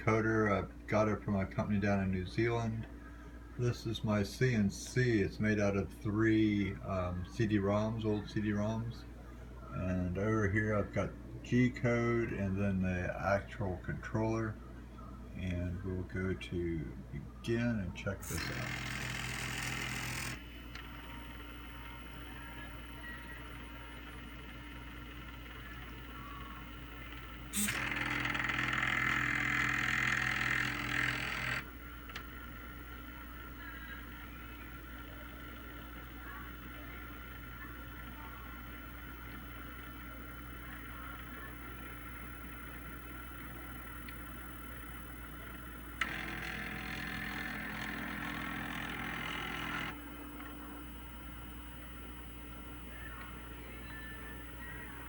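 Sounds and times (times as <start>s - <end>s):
low steady hum: 0.0s - 55.0s
stepper motor whine and buzz: 18.2s - 55.0s
motor click: 45.5s - 50.6s.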